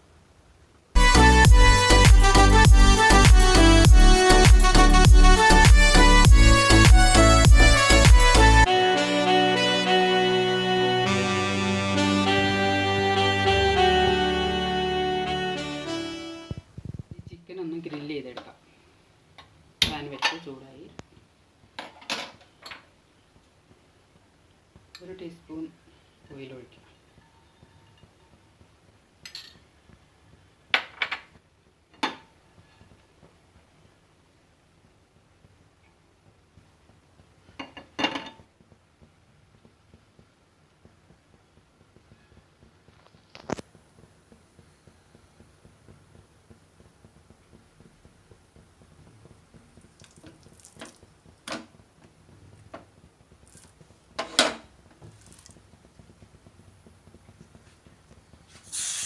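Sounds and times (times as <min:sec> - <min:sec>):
hot oil sizzling: 0:43.5 - 0:59.0.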